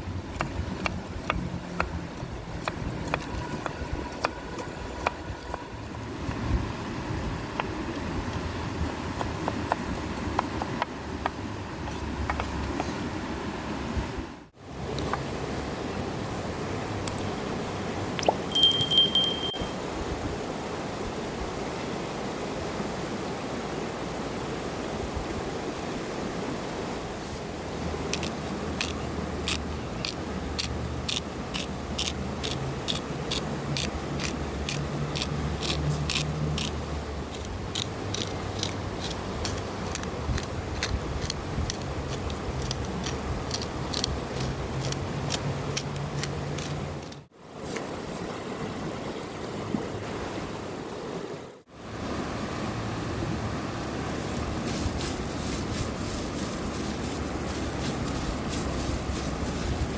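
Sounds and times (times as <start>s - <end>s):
steady rushing background noise: 52.3s - 59.9s.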